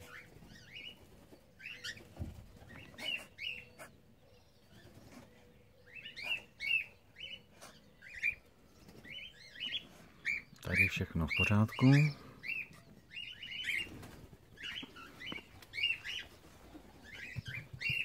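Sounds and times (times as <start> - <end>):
cockatiels chirping: 0.0 - 1.0, 9.1 - 16.4, 17.0 - 18.0.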